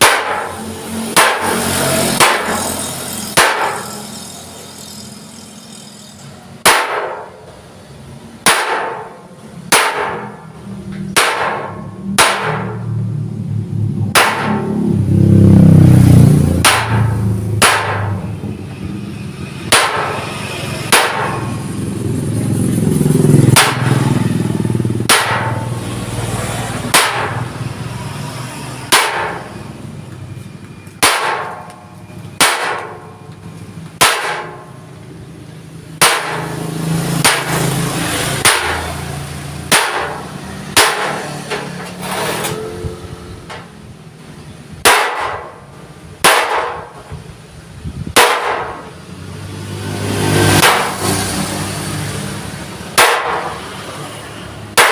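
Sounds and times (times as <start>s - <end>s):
hammer striking chisel on steel: 0.0s - 7.6s, 8.4s - 13.0s, 14.1s - 15.0s, 16.6s - 18.4s, 19.7s - 21.6s, 23.5s - 25.8s, 26.8s - 29.7s, 30.8s - 33.3s, 33.9s - 34.8s, 36.0s - 43.8s, 44.8s - 47.2s, 48.2s - 48.9s, 50.5s - 51.2s, 52.9s - 54.1s, 54.7s - 54.9s.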